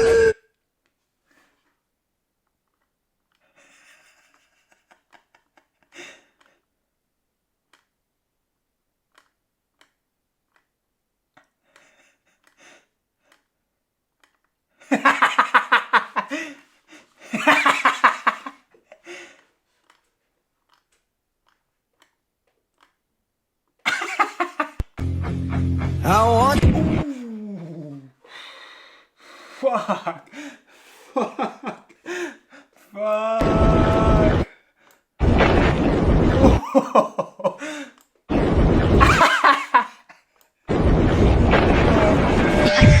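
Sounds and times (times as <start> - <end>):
person laughing hard: 3.6 - 6.2, 14.9 - 16.6, 17.3 - 18.6, 23.9 - 24.8, 26.8 - 28.1, 29.6 - 32.4, 36.3 - 37.9, 39.0 - 40.1.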